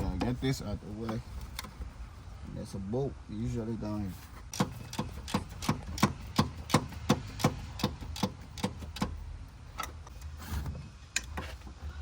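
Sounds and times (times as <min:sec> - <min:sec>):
hand ratchet clicking: 0:04.5 - 0:09.2.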